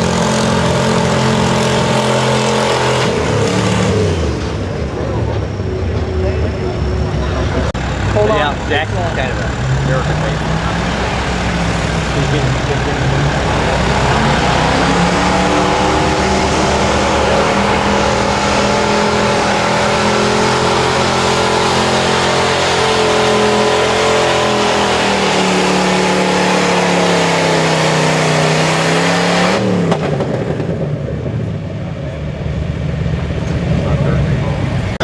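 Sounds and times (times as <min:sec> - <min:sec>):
truck engine at high revs: 0:00.0 - 0:35.0.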